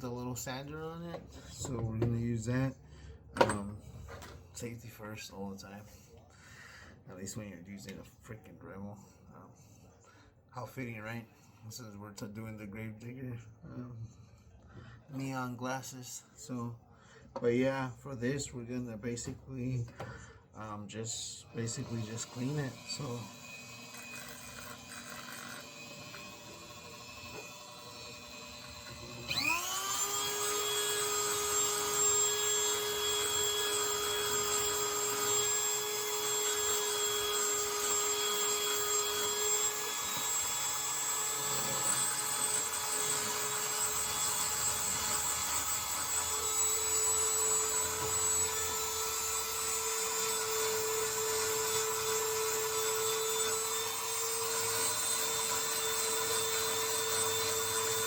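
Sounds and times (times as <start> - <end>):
rotary tool whining: 21.6 - 58.0.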